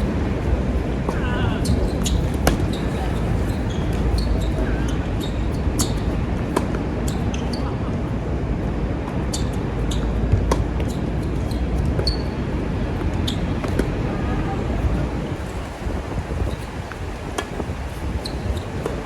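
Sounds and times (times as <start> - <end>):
tennis balls struck by rackets: 0.0 - 7.6, 9.0 - 14.0
balls bouncing on hard court: 0.0 - 7.7, 9.1 - 14.0
wind buffeting microphone: 0.0 - 19.0.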